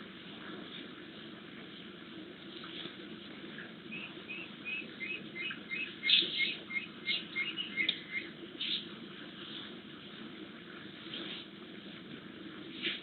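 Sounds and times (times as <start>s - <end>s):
bird chirping: 3.9s - 8.9s.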